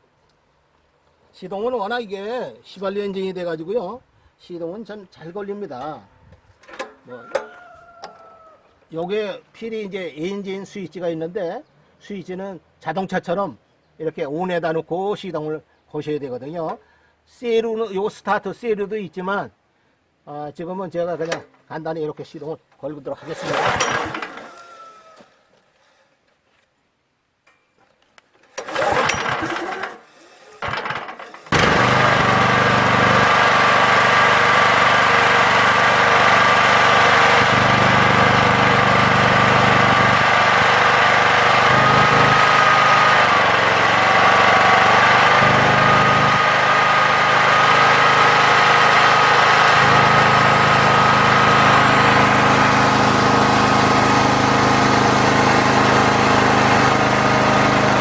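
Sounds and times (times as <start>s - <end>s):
engine pull-start: 6.6s - 7.5s, 21.2s - 21.5s, 23.2s - 24.5s, 28.4s - 58.0s
petrol engine running: 23.5s - 24.4s, 30.7s - 58.0s.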